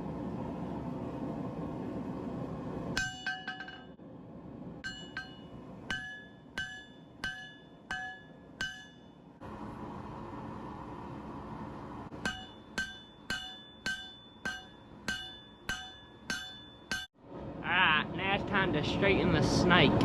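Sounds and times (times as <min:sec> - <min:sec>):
hammer ringing on anvil: 0:03.0 - 0:04.0, 0:04.8 - 0:09.3, 0:12.2 - 0:17.1.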